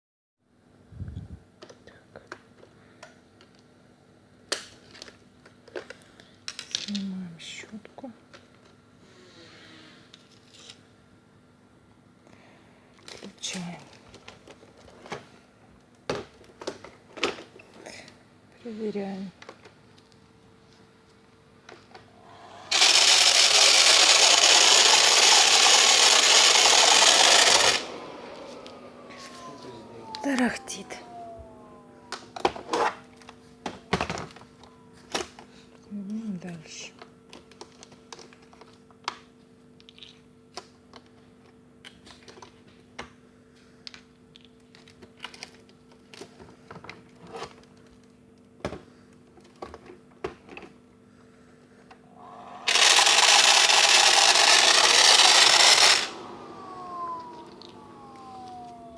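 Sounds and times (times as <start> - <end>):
vacuum cleaner running with rattle: 21.7 - 38.8, 51.8 - 58.9
vacuum cleaner switch: 22.2 - 35.3, 52.2 - 58.9
motor winding down whine: 22.2 - 35.4, 52.1 - 58.9.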